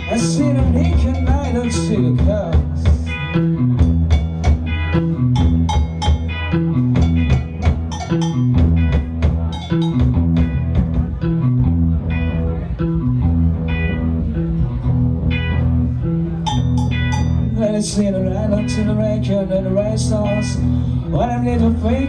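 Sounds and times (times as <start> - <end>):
drum kit beat: 0.0 - 12.2, 16.4 - 17.8
bass guitar figure: 0.0 - 22.0
electric guitars: 0.0 - 22.0.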